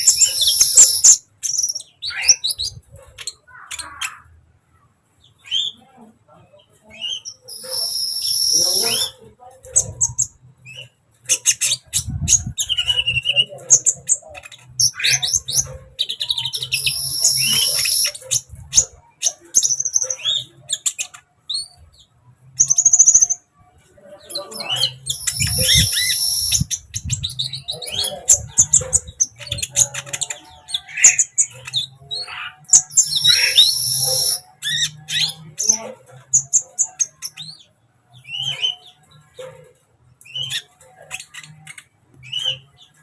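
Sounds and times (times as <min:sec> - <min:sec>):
high buzzy bird trill: 0:00.0 - 0:02.5, 0:16.5 - 0:18.2, 0:25.0 - 0:26.9, 0:32.7 - 0:34.5
sunbird chirping and twittering: 0:00.0 - 0:04.4, 0:06.8 - 0:23.5, 0:24.2 - 0:39.3.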